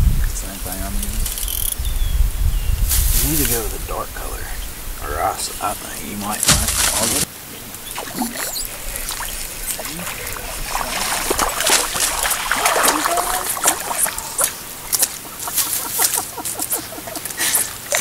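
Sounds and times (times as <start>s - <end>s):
water trickling: 6.2s - 15.6s
short sharp splashes: 6.4s - 16.3s.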